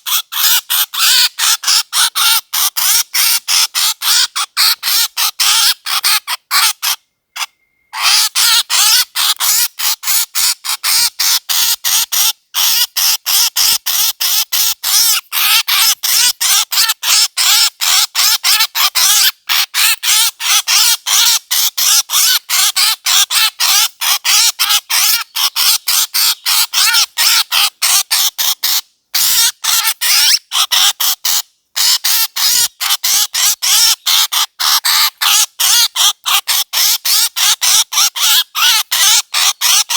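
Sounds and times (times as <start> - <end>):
short high bird calls: 5.4 - 9.3.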